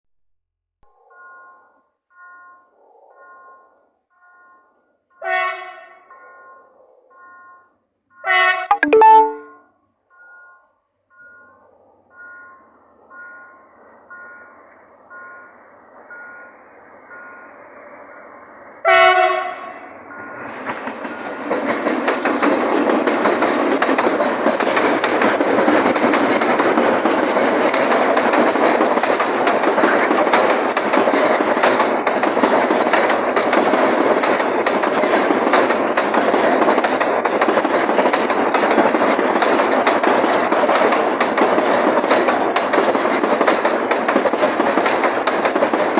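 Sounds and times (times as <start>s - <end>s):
two-tone chime: 8.7s - 9.6s
freight train passing: 12.1s - 45.9s.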